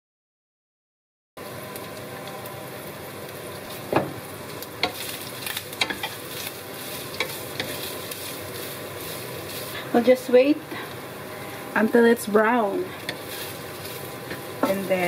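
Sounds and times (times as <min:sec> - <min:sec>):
chicken sizzling in a frying pan: 0:01.4 - 0:15.0
wooden spatula scraping a pan: 0:13.0 - 0:15.0.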